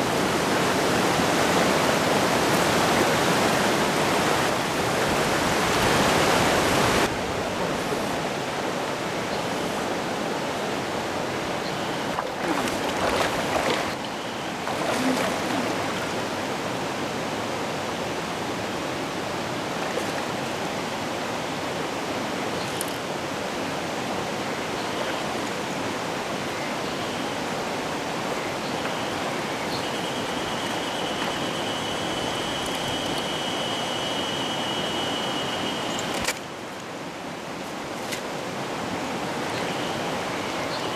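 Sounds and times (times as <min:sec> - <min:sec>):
stream running over rocks: 0:00.0 - 0:40.9
water splashing: 0:12.1 - 0:16.5.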